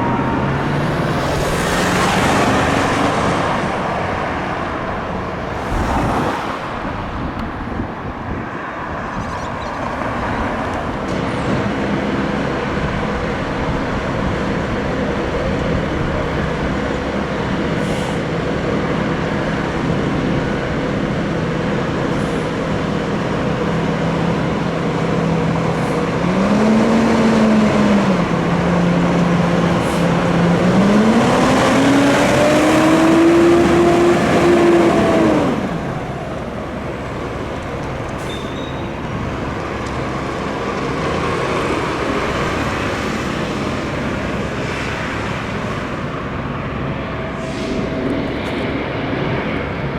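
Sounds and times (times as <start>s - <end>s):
diesel engine running: 0.0s - 8.4s, 9.4s - 49.9s.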